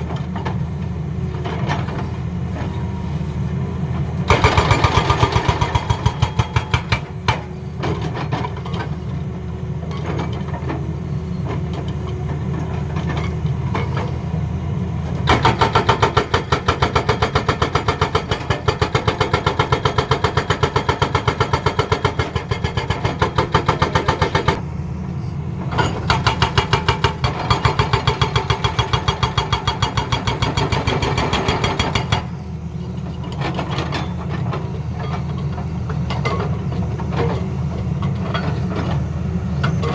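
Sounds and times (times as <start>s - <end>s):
diesel engine running: 0.0s - 39.9s
hydraulic breaker hammering: 4.3s - 7.5s, 25.8s - 32.3s.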